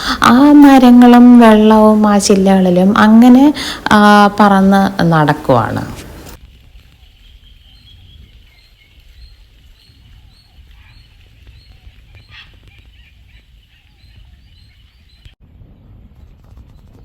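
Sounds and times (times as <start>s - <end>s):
faint bird calls: 7.0s - 15.3s
low rumble: 15.4s - 17.0s.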